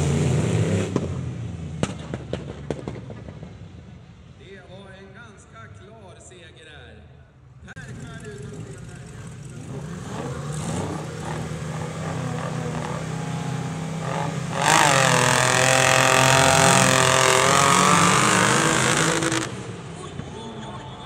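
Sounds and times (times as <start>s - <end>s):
tractor engine at full throttle: 7.8s - 19.9s.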